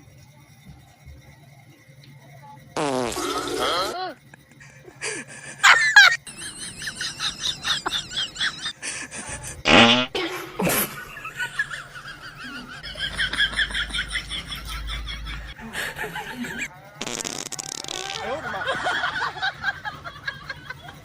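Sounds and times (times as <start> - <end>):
fart noises: 2.8 - 4.2, 9.6 - 10.9, 17.0 - 18.4
high-pitched wavering laughter: 3.6 - 9.6, 10.3 - 16.7, 18.1 - 21.0.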